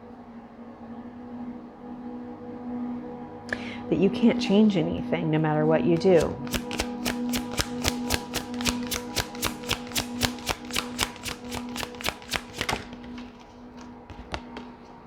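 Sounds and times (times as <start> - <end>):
soft background music: 0.0 - 15.0
cards being shuffled: 6.0 - 15.0.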